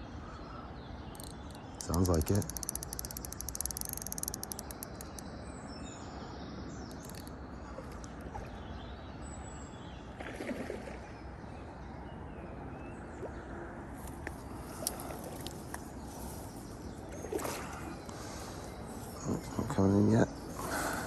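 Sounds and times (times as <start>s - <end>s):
faint bird chirps: 0.0s - 8.9s
outdoor background noise: 0.0s - 21.0s
rapid even clicking: 1.2s - 5.3s.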